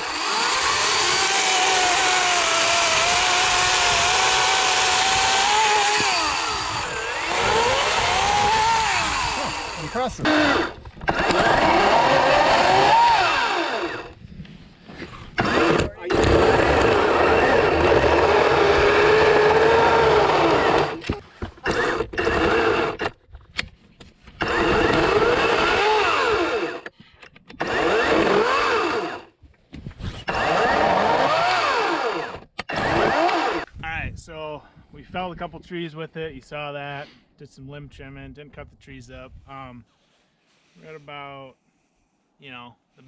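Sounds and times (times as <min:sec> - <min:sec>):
chainsaw cutting wood: 0:00.0 - 0:14.2, 0:15.3 - 0:23.2, 0:24.3 - 0:26.9, 0:27.5 - 0:29.3, 0:30.1 - 0:33.7.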